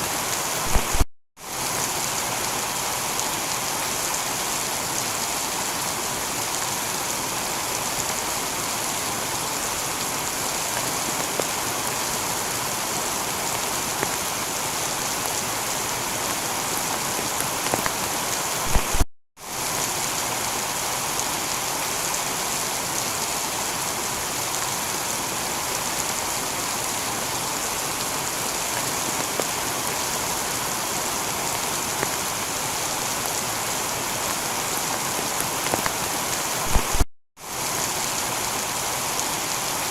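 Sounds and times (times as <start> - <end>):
heavy rain: 0.0 - 39.9
sharp pops: 0.6 - 1.1, 18.7 - 19.1, 36.7 - 37.1.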